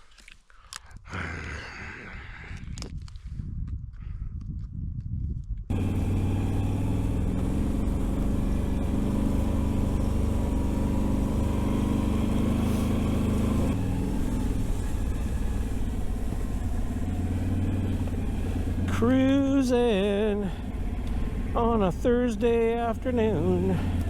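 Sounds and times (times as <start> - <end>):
atv engine running: 5.7 - 24.0.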